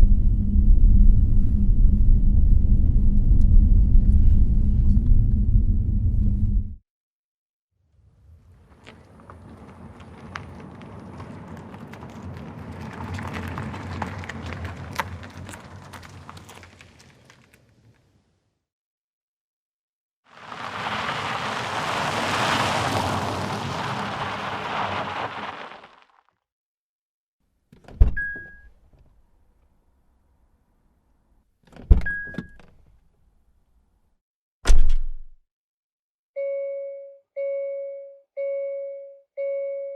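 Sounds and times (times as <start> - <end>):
car engine and tyre noise: 7.9 - 18.5, 20.3 - 26.2
car door thudding shut: 34.7 - 35.3.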